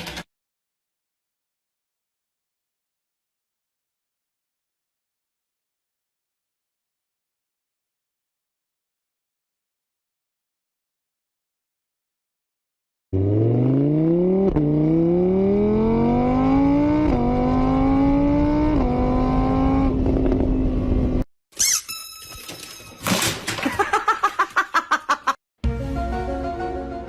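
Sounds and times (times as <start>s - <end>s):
vehicle engine accelerating: 13.2s - 21.3s
high squeaks: 21.6s - 23.3s.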